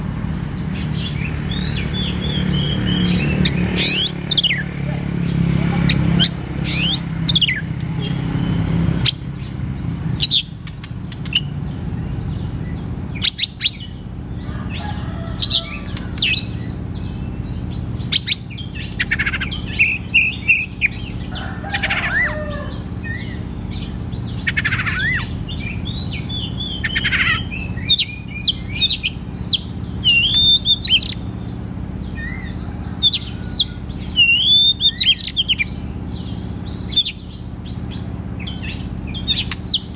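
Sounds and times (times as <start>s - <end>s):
bird singing whistled notes: 5.9s - 14.1s, 22.6s - 39.9s.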